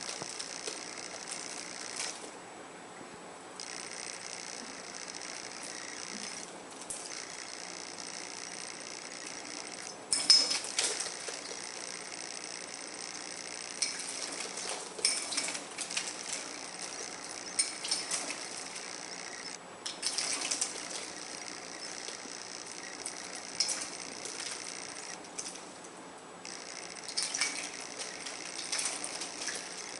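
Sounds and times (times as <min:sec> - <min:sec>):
plate clinks: 0:10.1 - 0:10.7.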